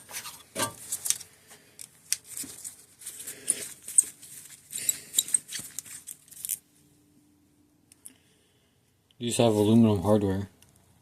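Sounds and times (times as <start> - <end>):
small metallic clicks and ticks: 7.9 - 8.2.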